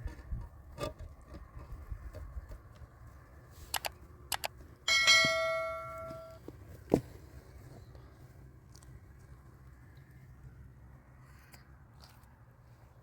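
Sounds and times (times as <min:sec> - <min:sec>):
metallic clang ringing: 0:04.9 - 0:06.4.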